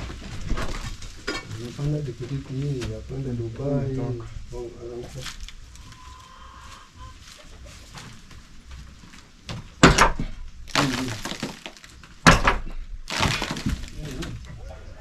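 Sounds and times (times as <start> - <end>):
sharp cracking impacts: 9.8 - 14.5.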